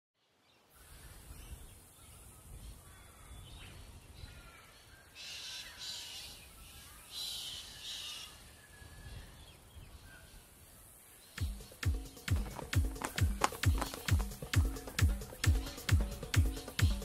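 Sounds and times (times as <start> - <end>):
harsh raspy bird calls: 4.3 - 8.4, 11.4 - 17.0.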